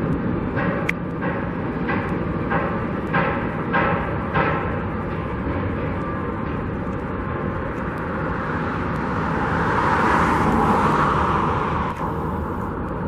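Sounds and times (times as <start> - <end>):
road traffic rumble: 0.0 - 13.0
vehicle passing: 7.3 - 13.0.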